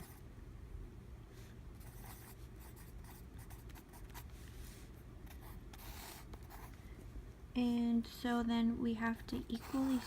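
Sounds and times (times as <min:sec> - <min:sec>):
low room hum: 0:00.0 - 0:10.0
pen scratching on paper: 0:01.8 - 0:04.3, 0:05.3 - 0:06.7, 0:09.5 - 0:10.0.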